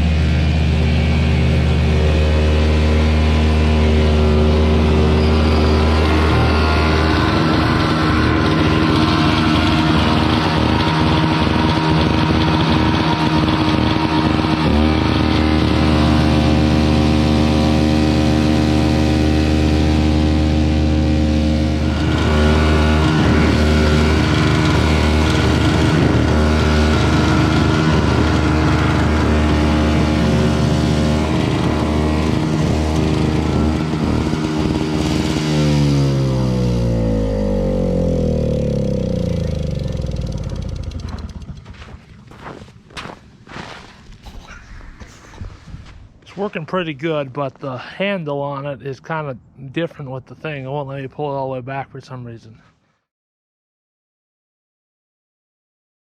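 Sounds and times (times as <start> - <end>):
snowblower engine running: 0.0 - 44.4.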